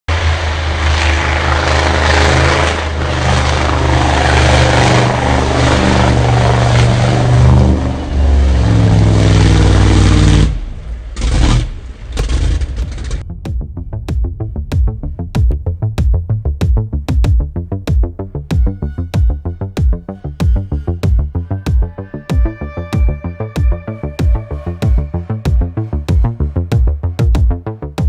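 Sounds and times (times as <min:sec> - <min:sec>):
truck engine revving hard: 0:00.1 - 0:13.2.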